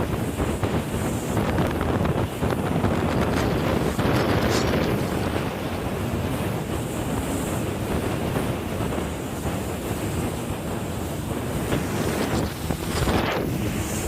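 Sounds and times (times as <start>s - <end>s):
jet ski engine running: 0.0s - 14.0s
rushing water: 0.0s - 14.0s
wind buffeting microphone: 0.0s - 14.0s.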